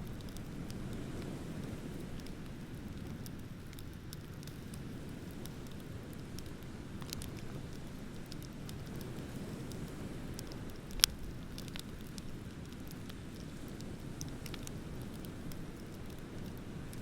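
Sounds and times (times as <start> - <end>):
bonfire crackling: 0.0 - 17.0.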